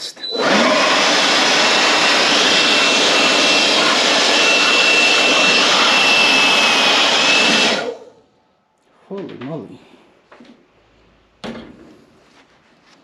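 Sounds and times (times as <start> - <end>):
air blower nozzle hissing: 0.4 - 8.1.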